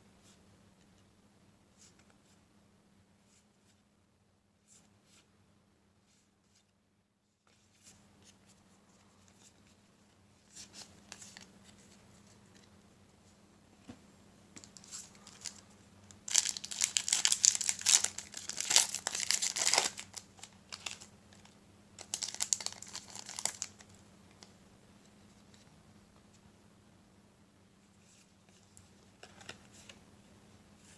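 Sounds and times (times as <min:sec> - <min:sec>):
wrapper tearing and crinkling: 0:16.2 - 0:21.1, 0:22.0 - 0:23.8.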